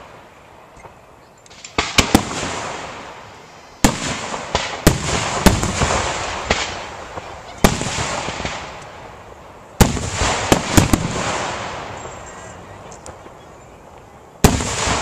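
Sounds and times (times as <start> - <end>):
sharp firework bangs: 0.0 - 9.2, 9.8 - 12.5, 14.4 - 15.0
echoing firework booms: 1.6 - 9.2, 9.8 - 12.3, 14.4 - 15.0.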